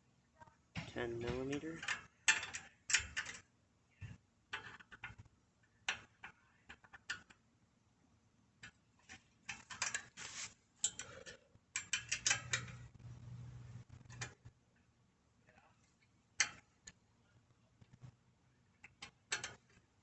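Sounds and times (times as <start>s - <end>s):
ratchet wrench clicking: 11.8s - 12.7s.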